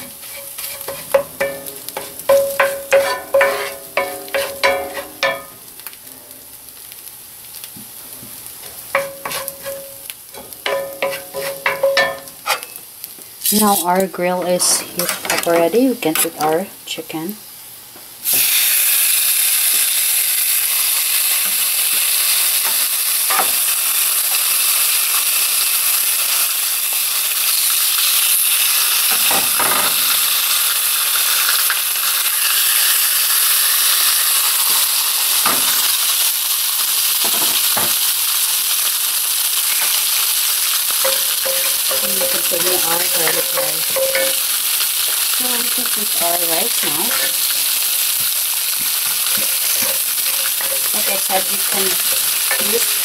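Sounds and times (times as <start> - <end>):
wooden spatula scraping pan: 0.0 - 1.2, 2.0 - 5.1, 11.0 - 11.8
chicken sizzling on grill pan: 0.0 - 53.0
metal tongs clicking: 41.0 - 44.4, 49.4 - 51.1.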